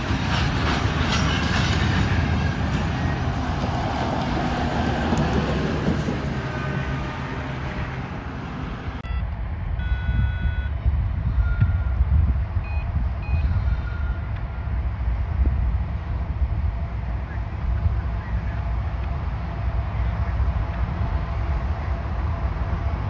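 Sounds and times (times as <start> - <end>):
wind on microphone: 0.0 - 7.0, 9.1 - 23.0
freight train rolling on rails: 0.0 - 9.8, 10.8 - 23.0
short high beeps: 9.0 - 10.7.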